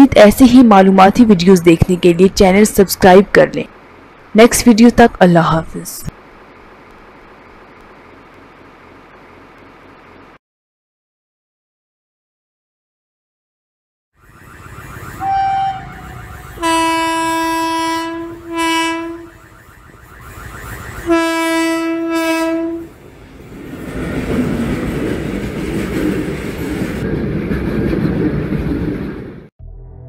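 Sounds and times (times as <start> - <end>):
locomotive horn blasts: 15.2 - 19.5, 21.0 - 23.0
freight wagons rolling on track: 23.0 - 29.4.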